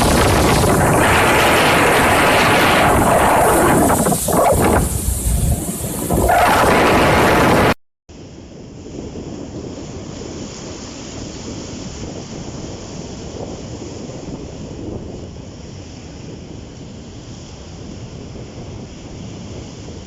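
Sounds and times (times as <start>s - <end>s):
waves washing: 0.0s - 7.8s
wind on microphone: 0.0s - 20.0s.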